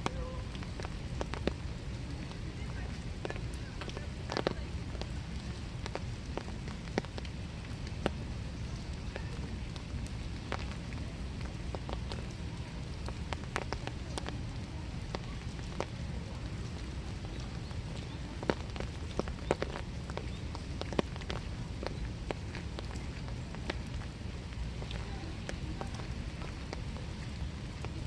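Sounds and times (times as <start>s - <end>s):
drops ticking on surfaces: 0.0s - 8.3s, 8.9s - 28.0s
rain falling in woods: 0.0s - 28.0s.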